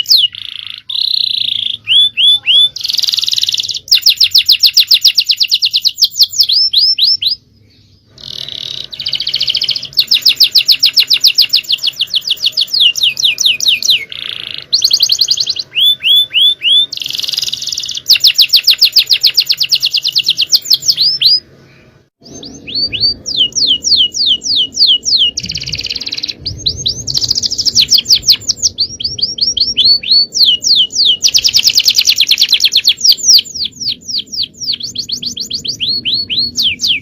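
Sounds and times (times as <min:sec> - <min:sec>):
canary singing: 0:00.0 - 0:37.0.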